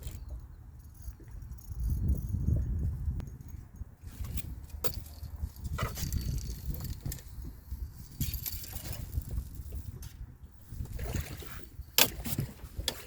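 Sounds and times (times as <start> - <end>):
fishing reel clicking and rattling: 0.0 - 10.1
wind rumble on microphone: 0.0 - 13.0.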